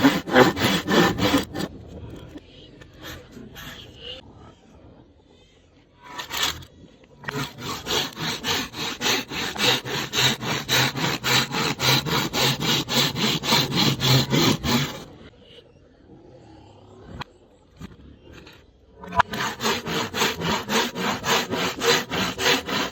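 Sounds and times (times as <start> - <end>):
saw cutting bamboo: 0.0 - 1.7, 7.2 - 15.1, 19.1 - 22.9.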